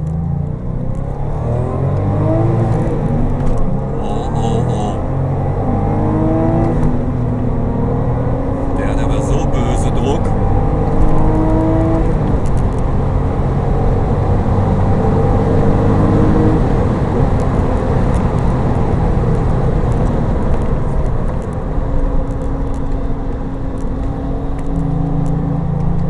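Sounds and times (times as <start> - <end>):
car engine pulling hard: 0.0 - 26.0.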